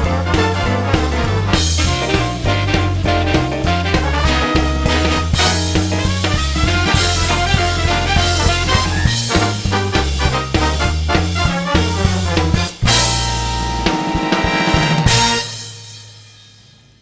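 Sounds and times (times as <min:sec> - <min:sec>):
upbeat swing music with brass: 0:00.0 - 0:16.2.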